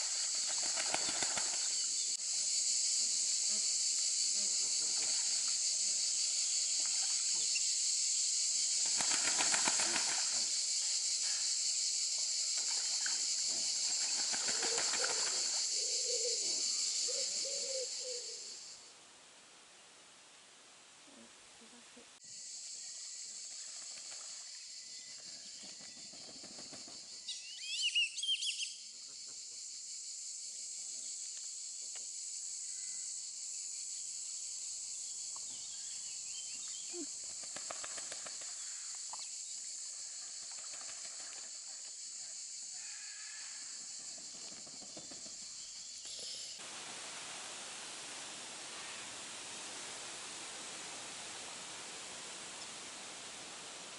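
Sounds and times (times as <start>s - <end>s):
steady high outdoor hiss: 0.0s - 53.9s
bird chirps: 27.2s - 28.8s.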